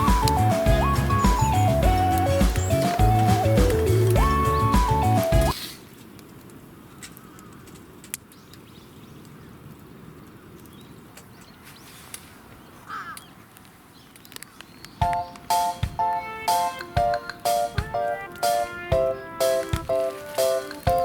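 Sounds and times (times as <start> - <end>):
background music: 0.0 - 5.5, 15.0 - 21.0
sharp clicks: 0.0 - 5.6, 13.2 - 18.8, 19.4 - 21.0.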